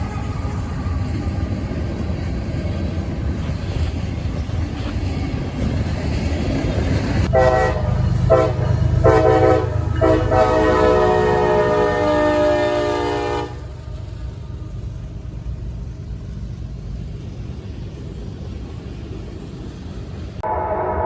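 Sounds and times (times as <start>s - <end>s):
diesel locomotive rumbling: 0.0s - 21.0s
train air horn blasts: 7.3s - 13.8s, 20.4s - 21.0s.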